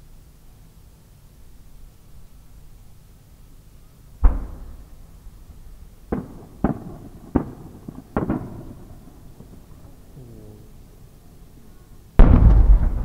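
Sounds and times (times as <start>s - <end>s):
firework deep boom: 4.2s - 10.0s, 12.2s - 13.0s
firework sharp cracks: 4.2s - 10.9s, 12.2s - 13.0s.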